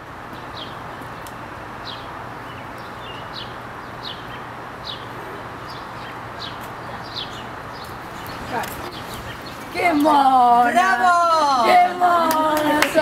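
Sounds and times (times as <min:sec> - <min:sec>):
bird chirping: 0:00.0 - 0:10.3.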